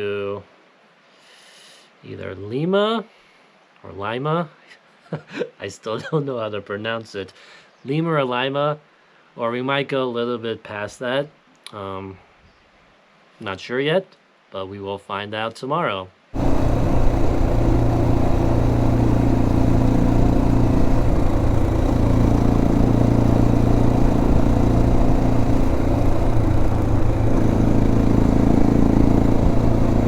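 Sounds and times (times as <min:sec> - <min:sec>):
motorcycle engine running: 0:16.4 - 0:30.0.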